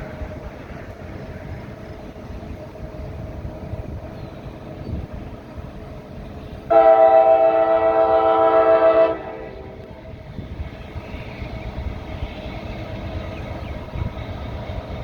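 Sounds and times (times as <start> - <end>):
diesel freight train rumble: 0.0 - 15.0
locomotive air horn chord: 6.7 - 9.9.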